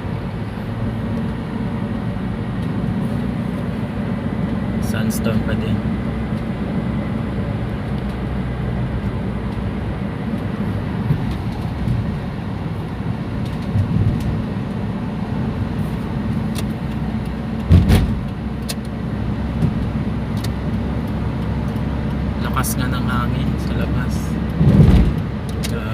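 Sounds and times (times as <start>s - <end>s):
car engine and road noise: 0.0s - 25.9s
brief thump: 17.7s - 18.2s, 24.6s - 25.2s.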